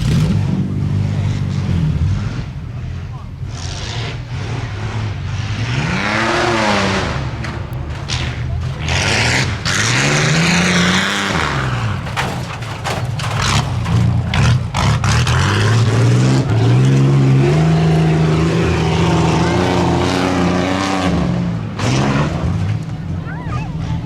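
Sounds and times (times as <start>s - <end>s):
truck engine revving hard: 0.0s - 23.2s
sharp knocks and clatter: 6.1s - 15.8s.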